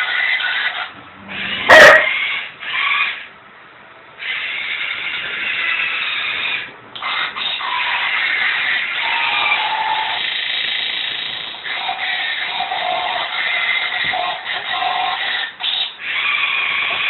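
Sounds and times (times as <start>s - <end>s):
dog barking: 1.6s - 2.2s.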